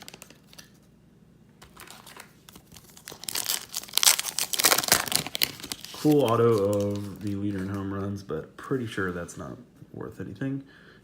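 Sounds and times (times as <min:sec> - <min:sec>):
foil wrapper crinkling and tearing: 0:00.0 - 0:00.7, 0:01.7 - 0:07.8.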